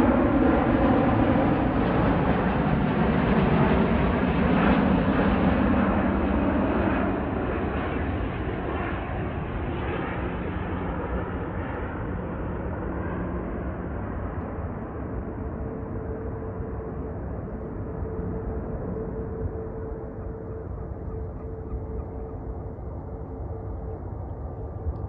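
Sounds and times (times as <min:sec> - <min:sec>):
jet airliner passing by: 0:00.0 - 0:25.0.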